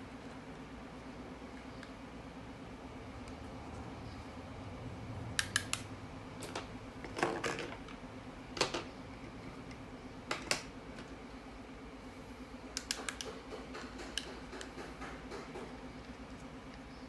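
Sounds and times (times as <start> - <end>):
steady low hum: 0.0 - 17.0
sharp clicks and taps: 12.8 - 16.8.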